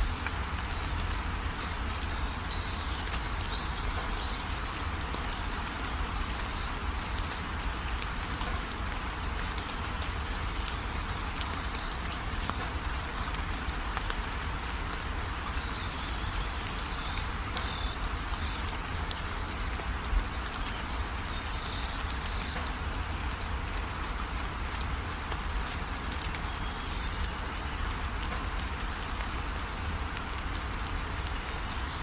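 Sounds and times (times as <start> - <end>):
steady rain with drops ticking: 0.0 - 32.0
birds twittering: 0.1 - 14.1.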